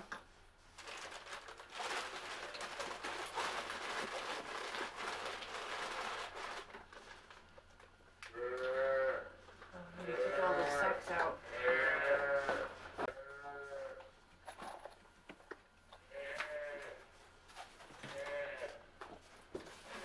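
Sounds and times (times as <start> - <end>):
rustling and crinkling: 0.0 - 20.0
farm animal bleating: 8.3 - 14.1, 16.1 - 17.0, 18.1 - 18.8.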